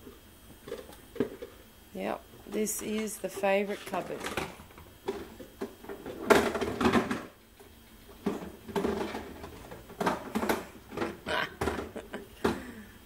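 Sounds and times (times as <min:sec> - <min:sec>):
kitchen things clattering: 0:08.2 - 0:12.7.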